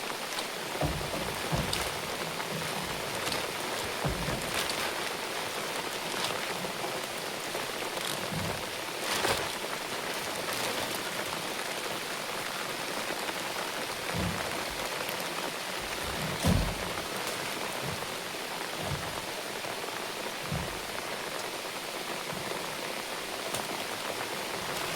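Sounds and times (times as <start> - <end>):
steady rain falling: 0.0 - 24.9
dull low thumps: 15.8 - 19.6, 20.4 - 21.1.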